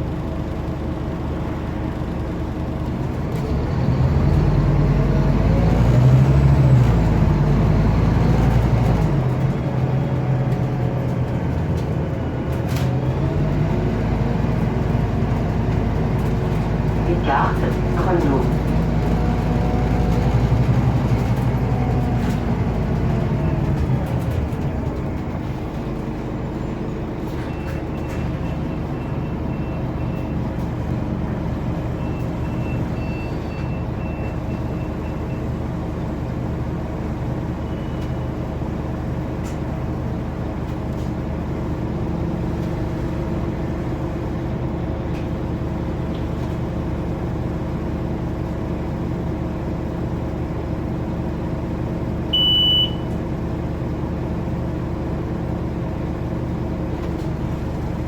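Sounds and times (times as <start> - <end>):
bus engine idling: 0.0 - 58.0
faint high beeping: 52.4 - 53.1.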